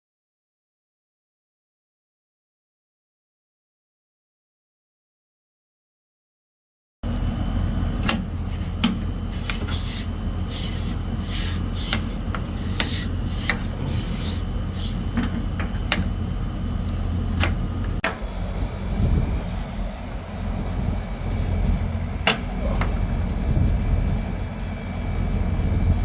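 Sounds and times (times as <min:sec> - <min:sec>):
steady low hum: 0:07.0 - 0:26.0
hands handling parts: 0:08.0 - 0:18.2.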